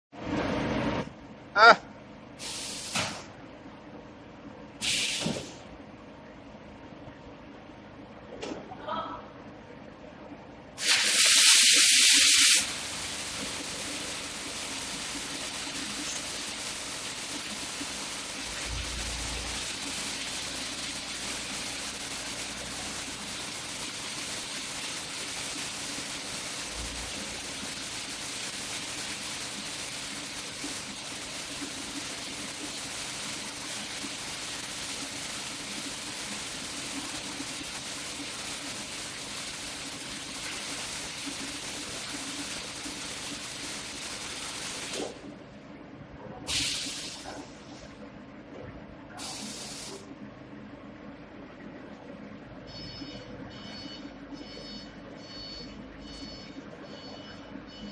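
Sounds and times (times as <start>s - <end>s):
arc welding hiss: 2.4s - 3.3s, 4.8s - 5.6s, 10.8s - 45.2s, 46.5s - 47.5s, 49.2s - 50.1s.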